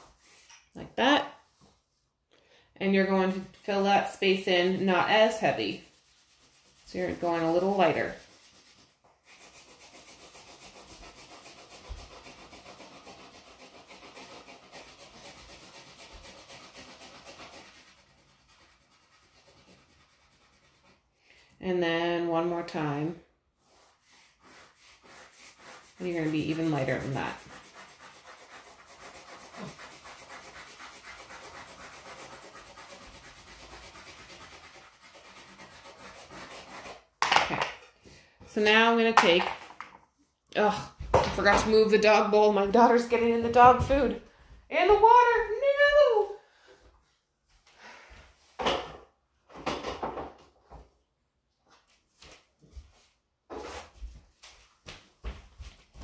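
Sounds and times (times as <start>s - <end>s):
crayon rubbing on paper: 3.0s - 21.1s, 23.6s - 37.0s.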